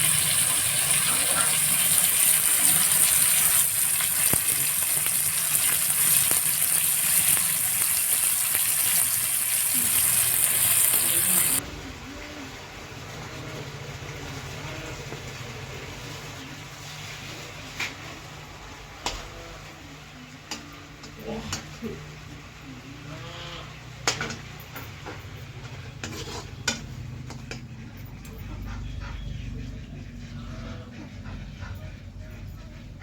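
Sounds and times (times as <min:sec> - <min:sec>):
chicken sizzling in hot oil: 0:00.0 - 0:11.6.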